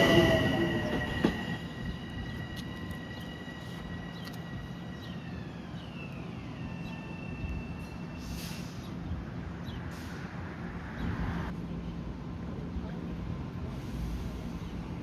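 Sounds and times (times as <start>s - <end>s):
train electric whine: 0.0s - 7.9s
short air hisses: 8.2s - 9.0s.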